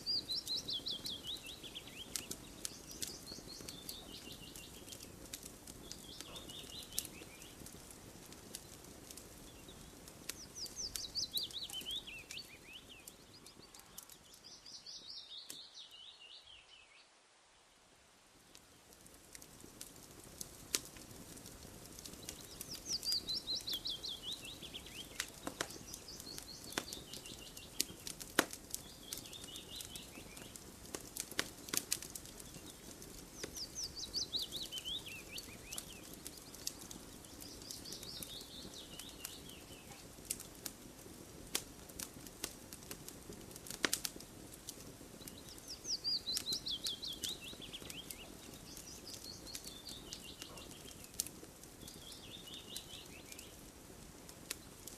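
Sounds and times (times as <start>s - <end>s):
campfire crackling and popping: 0.0s - 16.1s, 18.2s - 54.9s
bird chirping and trilling: 9.5s - 17.1s, 22.3s - 27.9s, 33.4s - 36.6s.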